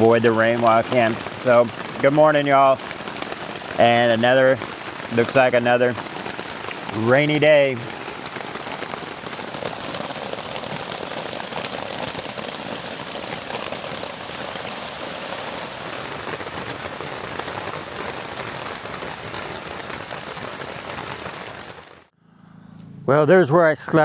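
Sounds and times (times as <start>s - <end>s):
rain falling on a tent: 0.0s - 22.1s.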